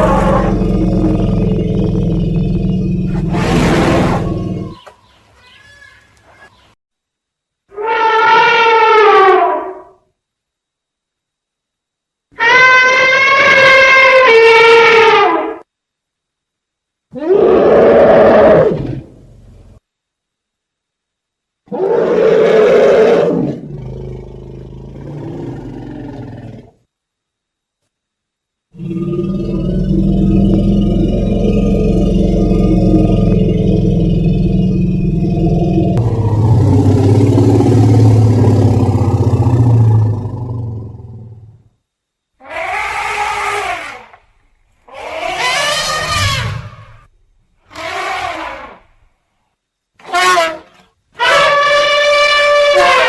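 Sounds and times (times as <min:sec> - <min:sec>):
elephant roaring: 0:00.0 - 0:04.8, 0:17.2 - 0:19.2, 0:21.7 - 0:26.7, 0:28.8 - 0:41.6, 0:44.9 - 0:47.1, 0:47.7 - 0:48.8, 0:51.2 - 0:53.0
elephant calls: 0:42.4 - 0:44.2, 0:44.9 - 0:47.1, 0:47.7 - 0:48.8, 0:50.0 - 0:53.0.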